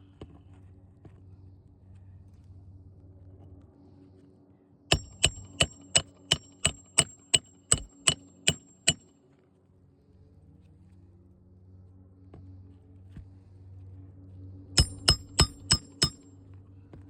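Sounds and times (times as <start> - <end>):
hammer striking metal: 4.9 - 9.0, 14.8 - 16.3.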